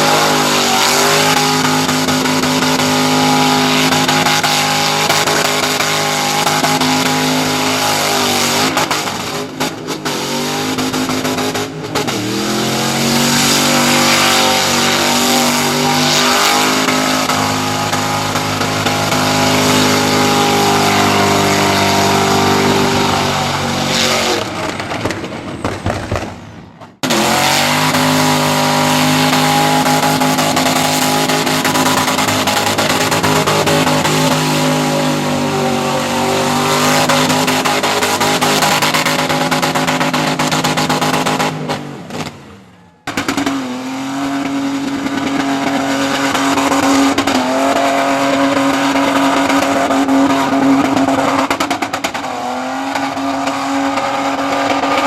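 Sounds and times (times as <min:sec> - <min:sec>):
car engine revving high: 0:00.0 - 0:25.1, 0:27.0 - 0:55.0.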